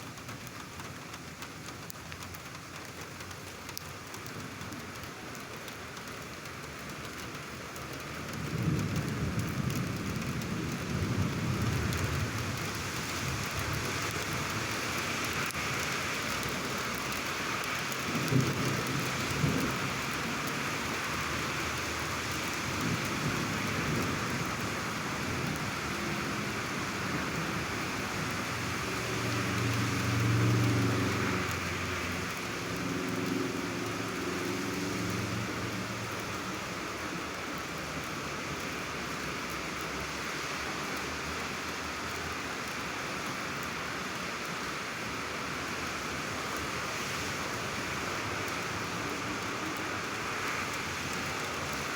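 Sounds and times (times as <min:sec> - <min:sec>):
heavy rain falling: 0:00.0 - 0:51.9
thunder rumbling: 0:08.3 - 0:14.0.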